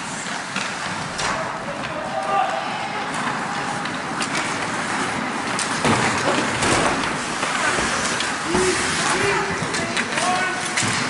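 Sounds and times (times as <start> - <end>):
outdoor rushing noise: 0.0 - 11.0
distant shouting voices: 1.2 - 3.9.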